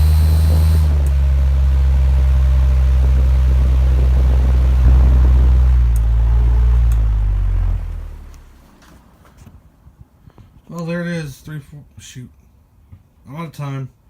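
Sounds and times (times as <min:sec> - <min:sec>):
faint high whine: 0:04.1 - 0:08.6.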